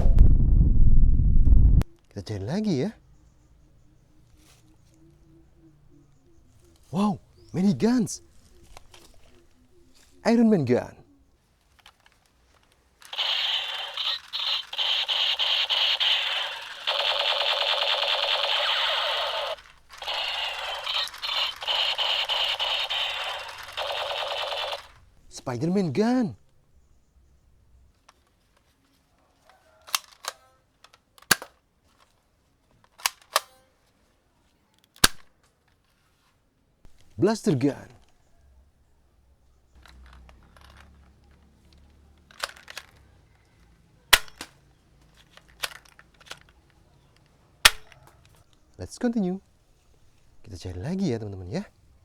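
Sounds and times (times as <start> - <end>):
faint handling noise: 3.2 - 48.8
toy gun electronic firing sound: 13.1 - 25.0, 44.2 - 44.5, 47.7 - 48.0.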